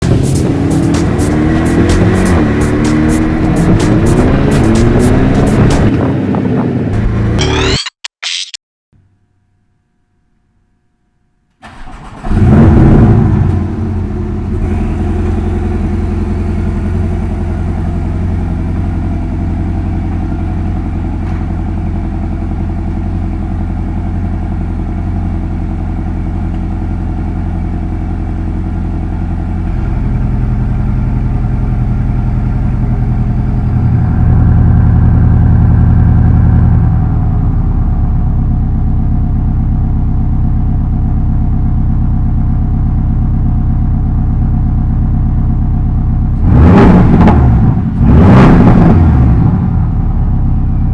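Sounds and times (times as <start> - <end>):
car engine cold start and idle: 11.6 - 46.8, 49.0 - 50.9.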